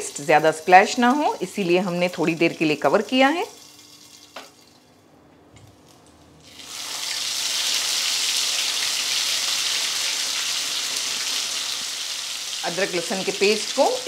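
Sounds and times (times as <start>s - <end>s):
spices sizzling in hot oil: 0.0s - 4.8s, 6.4s - 14.0s.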